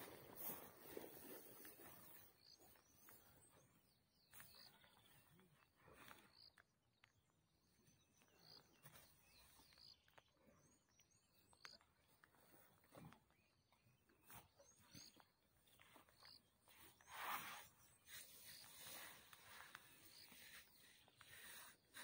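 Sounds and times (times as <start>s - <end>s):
soft rustles in grass: 0.0s - 3.7s
faint bird chirps: 0.0s - 22.0s.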